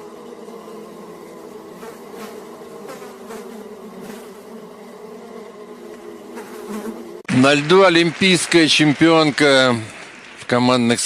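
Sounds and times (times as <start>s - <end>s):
insect buzzing: 0.0s - 7.3s.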